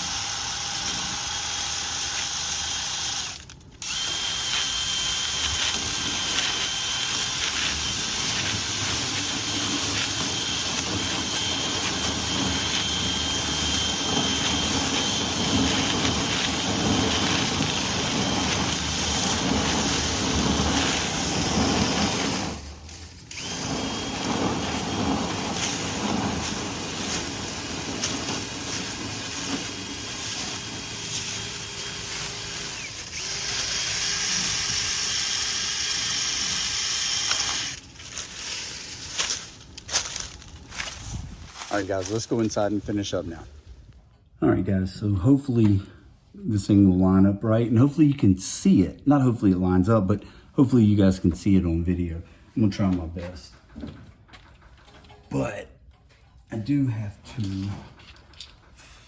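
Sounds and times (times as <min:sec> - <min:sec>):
vent cleaning tools whining: 0:00.0 - 0:40.9.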